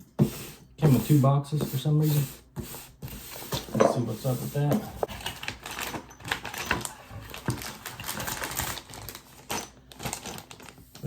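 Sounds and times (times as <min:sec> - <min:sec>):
cardboard rustling: 0:03.1 - 0:11.0.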